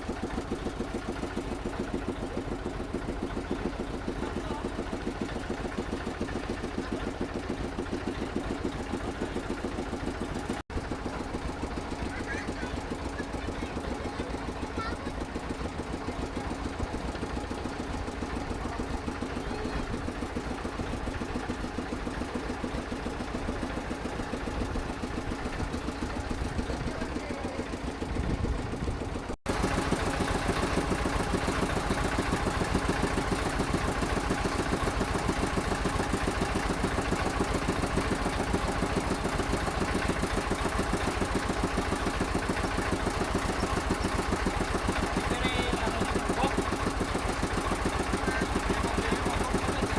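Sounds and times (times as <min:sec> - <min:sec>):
motorboat engine pulsing: 0:00.0 - 0:49.9.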